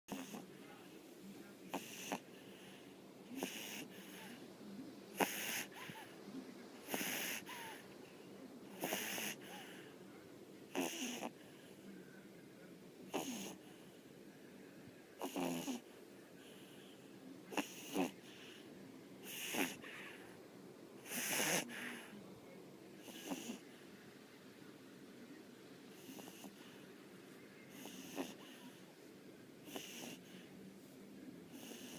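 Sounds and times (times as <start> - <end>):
dog snoring: 0.1 - 0.5, 1.7 - 4.4, 5.1 - 6.1, 6.8 - 7.8, 8.7 - 9.9, 10.7 - 11.4, 13.1 - 13.8, 15.2 - 15.8, 17.5 - 18.6, 19.2 - 20.2, 21.0 - 22.1, 23.0 - 23.6, 25.9 - 26.8, 27.7 - 28.8, 29.6 - 30.4, 31.5 - 31.9.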